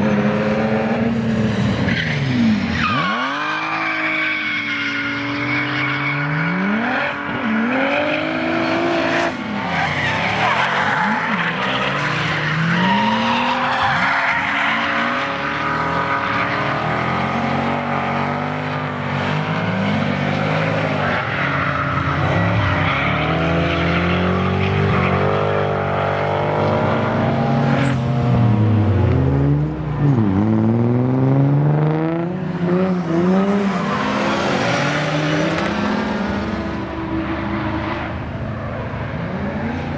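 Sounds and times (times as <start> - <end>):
tyres squealing and skidding: 1.4 - 18.0, 19.4 - 26.2, 33.0 - 39.9
car engine revving: 22.0 - 39.9.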